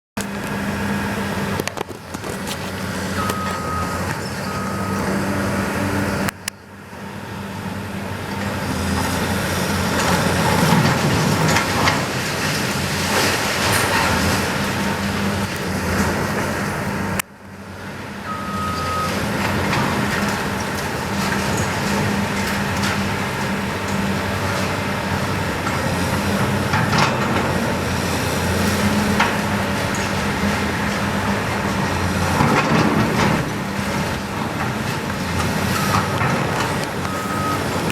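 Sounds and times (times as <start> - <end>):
diesel engine running: 0.2 - 37.9
backup alarm beeping: 3.2 - 6.3
debris grinding and clattering: 9.8 - 16.7, 19.1 - 37.9.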